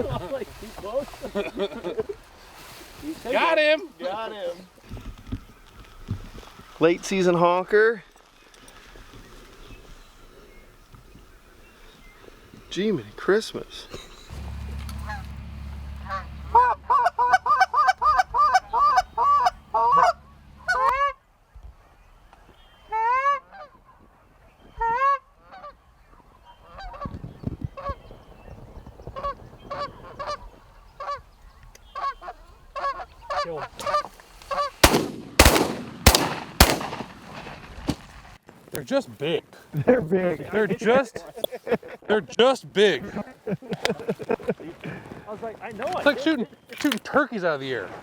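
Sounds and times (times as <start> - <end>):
geese honking: 14.3 - 21.2, 31.9 - 36.8
sharp bangs: 34.8 - 38.1.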